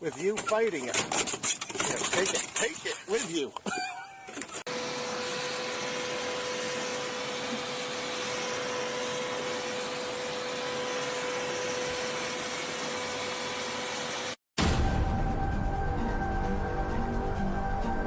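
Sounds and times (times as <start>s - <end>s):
motor-driven blower whirring: 4.7s - 14.4s.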